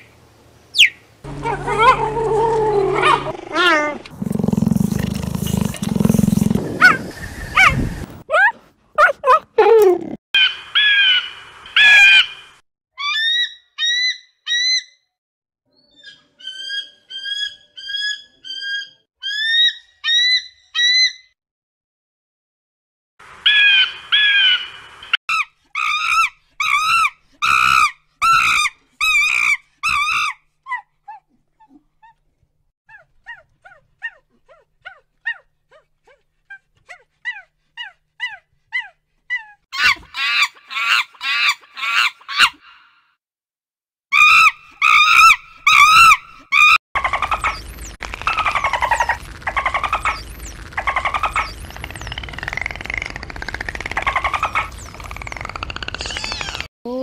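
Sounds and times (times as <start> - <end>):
high-pitched animal cries: 1.3 - 4.0, 13.0 - 14.9, 25.3 - 31.2, 44.1 - 47.6.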